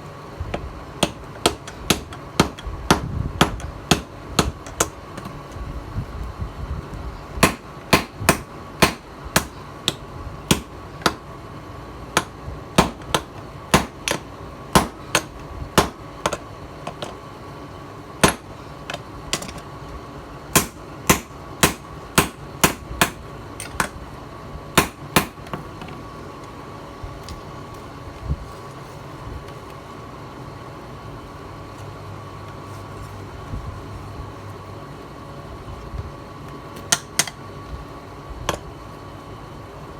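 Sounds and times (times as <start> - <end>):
steady hum with faint whine: 0.0 - 39.9
hammer striking steel on anvil: 14.8 - 16.4, 20.6 - 23.9.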